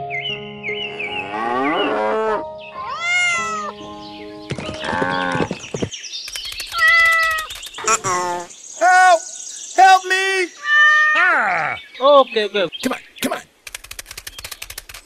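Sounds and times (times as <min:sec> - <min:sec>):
light background music: 0:00.0 - 0:05.5
animal cries: 0:01.7 - 0:03.8, 0:06.7 - 0:08.5, 0:10.5 - 0:11.8.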